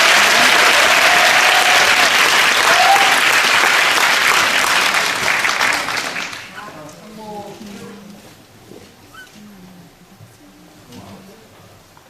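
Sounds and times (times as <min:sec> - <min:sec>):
audience clapping: 0:00.0 - 0:07.0.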